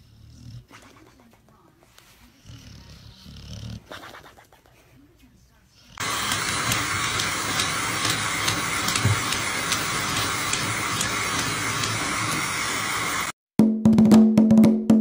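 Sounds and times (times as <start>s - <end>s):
shower spraying water: 6.0s - 13.3s.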